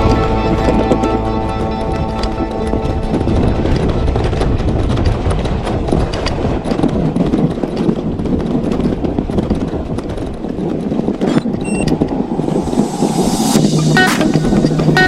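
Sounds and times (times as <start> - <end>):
wind buffeting microphone: 0.0 - 15.0
mountain bike rattling: 0.3 - 11.9.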